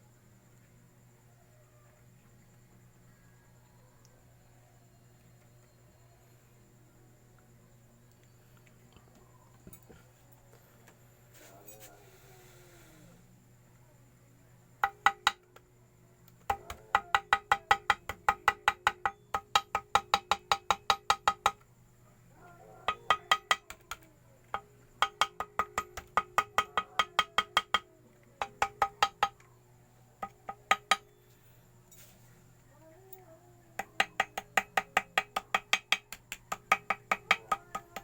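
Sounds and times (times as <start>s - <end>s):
hammer tapping on metal: 14.8s - 15.6s, 16.4s - 21.6s, 22.9s - 29.4s, 30.2s - 31.2s, 33.8s - 38.0s.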